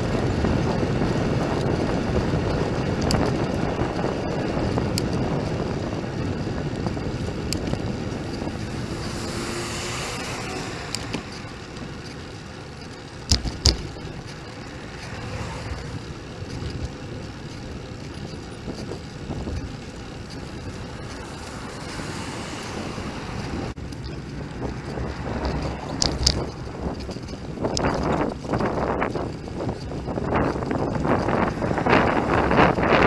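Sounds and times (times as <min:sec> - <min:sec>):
bicycle road noise: 0:00.0 - 0:33.0
wind noise: 0:00.0 - 0:33.0
sharp knocks: 0:13.3 - 0:14.0.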